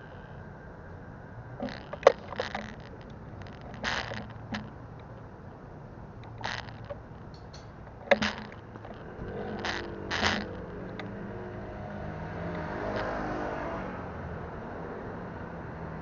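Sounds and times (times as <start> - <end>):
motor vehicle engine humming: 0.0 - 16.0
bicycle rattles and clicks: 1.6 - 5.6, 6.2 - 11.4.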